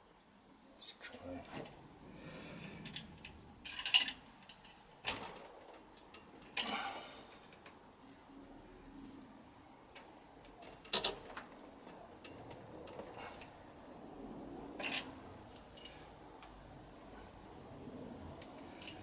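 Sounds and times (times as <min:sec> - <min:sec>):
metal parts and tools clinking: 0:03.6 - 0:05.3, 0:14.8 - 0:16.1, 0:18.7 - 0:19.0.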